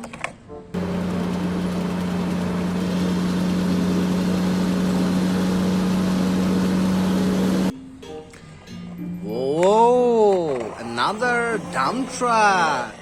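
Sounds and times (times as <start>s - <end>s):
engine idling: 0.8s - 7.7s.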